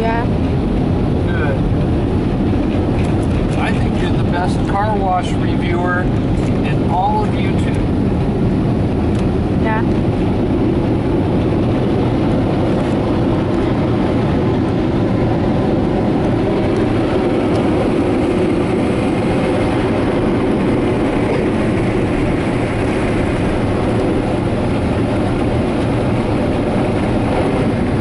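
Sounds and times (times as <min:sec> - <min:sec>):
air dryers roaring: 0:00.0 - 0:28.0.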